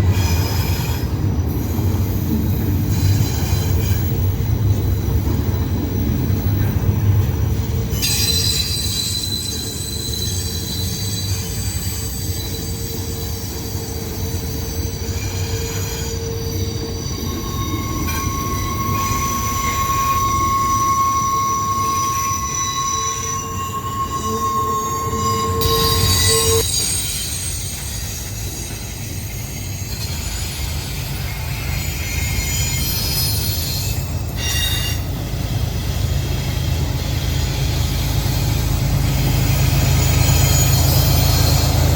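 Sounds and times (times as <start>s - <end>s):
freight train rumbling: 0.0s - 41.9s
train wheels squealing: 0.0s - 41.9s.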